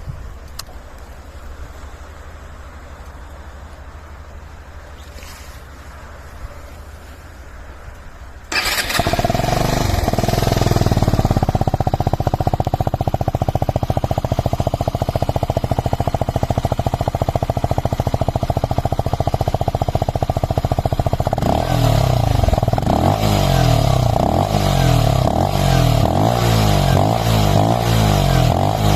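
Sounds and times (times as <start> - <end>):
motorcycle engine starting and idling: 8.5 - 28.9.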